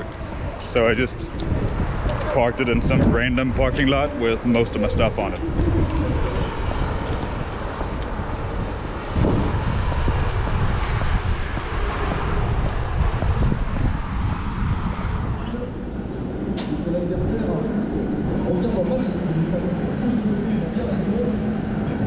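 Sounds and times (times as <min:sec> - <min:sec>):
low rumble of vehicle noise: 0:00.0 - 0:22.0.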